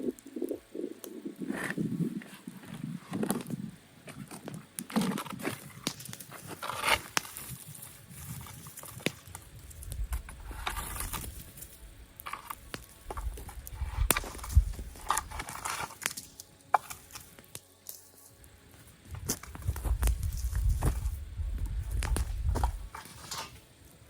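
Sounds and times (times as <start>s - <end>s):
campfire crackling: 0.0s - 24.0s
low rumbles: 9.3s - 15.5s, 19.1s - 23.0s.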